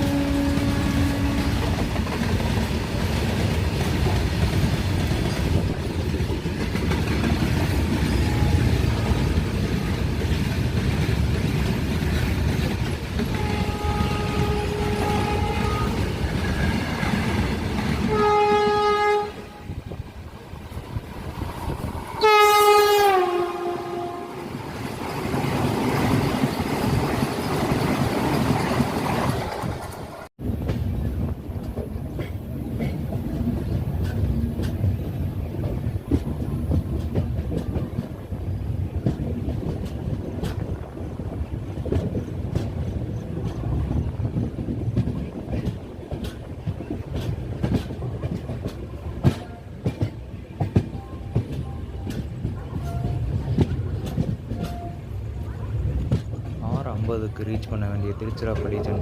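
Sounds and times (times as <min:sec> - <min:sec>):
train horn: 0:00.0 - 0:02.0, 0:08.0 - 0:09.4, 0:13.2 - 0:16.4, 0:18.0 - 0:19.9, 0:22.2 - 0:24.6, 0:50.9 - 0:53.5, 0:54.5 - 0:55.2
train rumbling on rails: 0:00.0 - 0:59.0.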